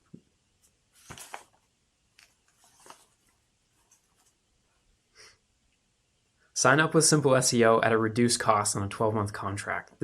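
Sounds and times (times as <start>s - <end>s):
faint rustling: 0.6s - 4.8s.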